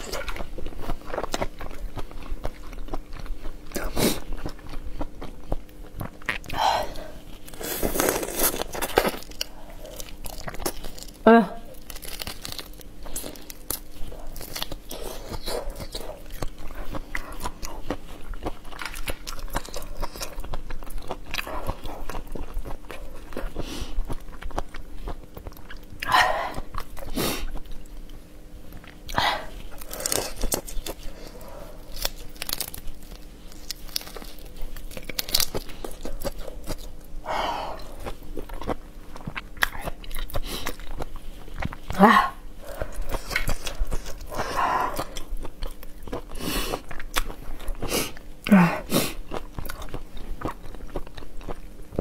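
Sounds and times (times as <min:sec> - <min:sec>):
chewing and crunching shrimp: 0:00.0 - 0:52.0.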